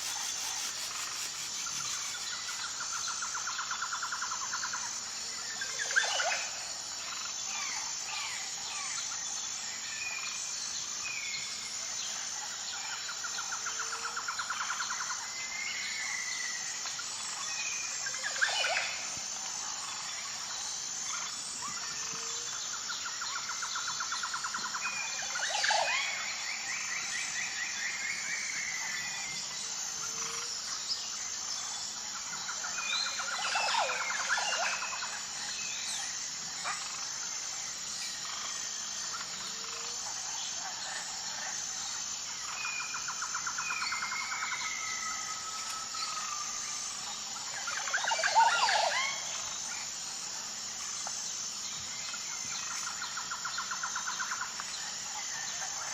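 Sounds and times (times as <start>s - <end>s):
pulsing insect chorus: 0.0s - 55.9s.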